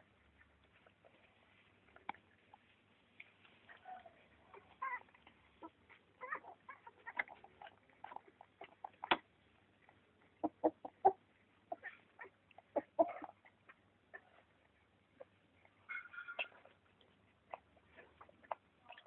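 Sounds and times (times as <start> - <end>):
animal calls and squeaks: 3.7 - 9.2, 15.8 - 16.8.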